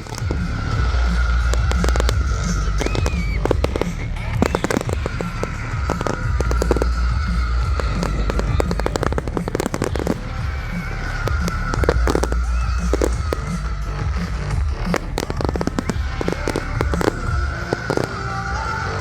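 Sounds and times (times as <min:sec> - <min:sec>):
fireworks bangs and crackles: 0:00.0 - 0:19.0
music playing: 0:00.0 - 0:19.0.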